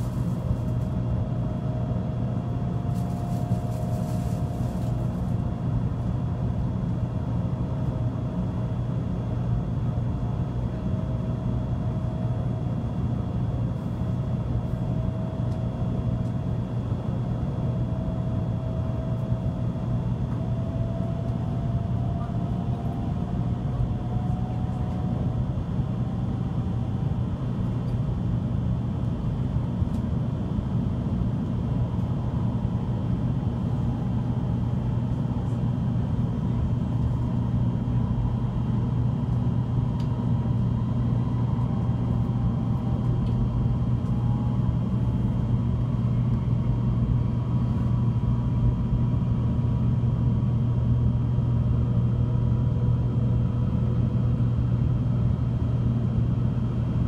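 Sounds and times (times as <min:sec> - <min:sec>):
train cabin low rumble: 0:00.0 - 0:57.0
train whine rising in pitch: 0:20.2 - 0:27.3.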